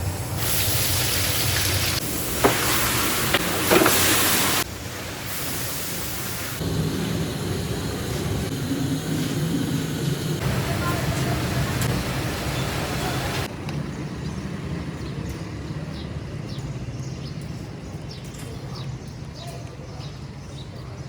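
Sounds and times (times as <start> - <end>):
hot oil sizzling and popping: 0.0 - 10.5.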